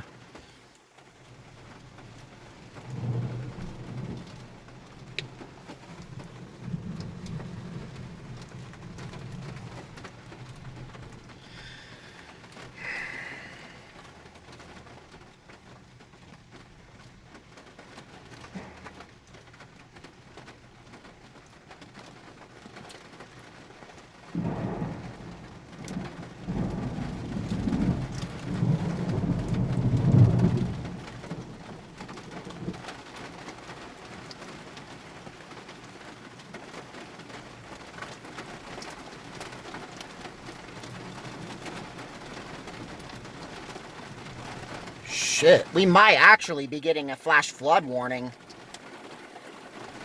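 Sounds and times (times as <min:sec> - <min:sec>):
heavy rain pouring: 0:00.0 - 0:50.0
thunder rumbling: 0:24.4 - 0:25.4.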